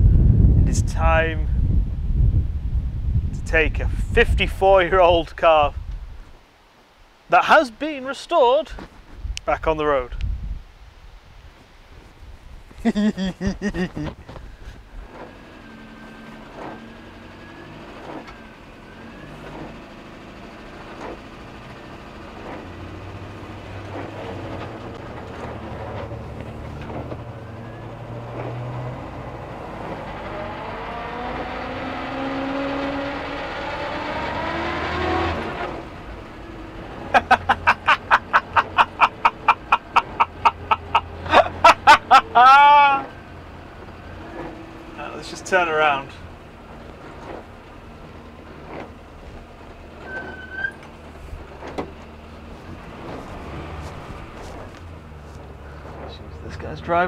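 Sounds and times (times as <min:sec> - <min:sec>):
car engine accelerating: 0:12.9 - 0:57.0.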